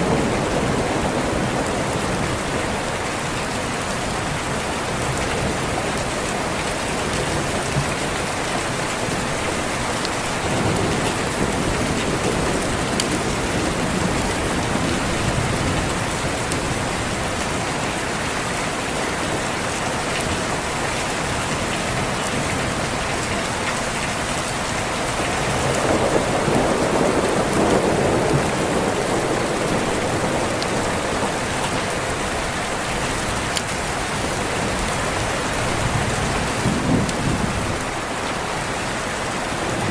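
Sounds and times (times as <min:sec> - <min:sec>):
rain falling: 0:00.0 - 0:39.9
rolling thunder: 0:10.4 - 0:17.4, 0:25.1 - 0:38.0.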